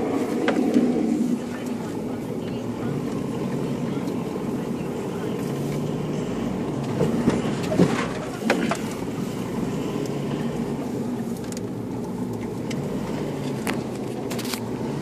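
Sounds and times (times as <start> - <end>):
car engine running: 0.0 - 15.0
vehicle knocks and rattles: 6.8 - 9.1.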